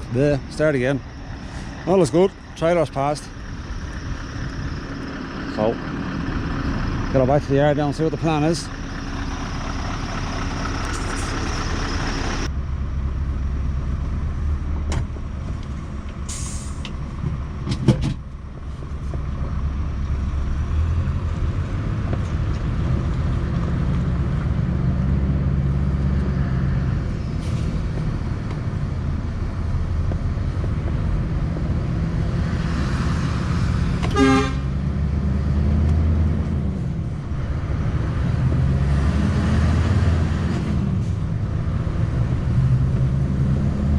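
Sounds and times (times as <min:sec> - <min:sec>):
truck engine running: 0:00.0 - 0:43.9
brief horn toot: 0:34.0 - 0:34.7.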